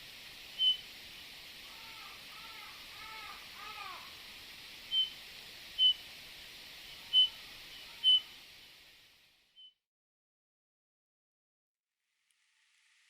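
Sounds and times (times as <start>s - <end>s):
steady background hiss: 0.0s - 9.6s
songbird whistled notes: 0.6s - 0.8s, 4.9s - 5.2s, 5.8s - 6.0s, 7.1s - 8.3s.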